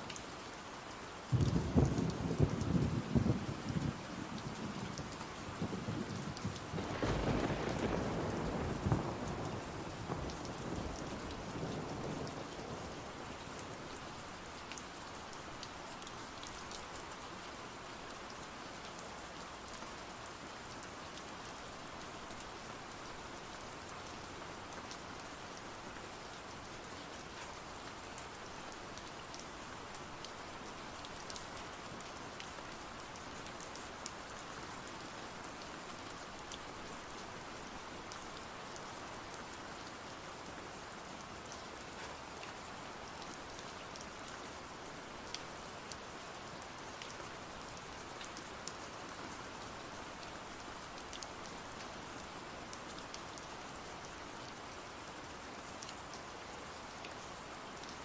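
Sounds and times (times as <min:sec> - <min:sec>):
steady rain: 0:00.0 - 0:58.0
thunder rumbling: 0:05.6 - 0:12.4.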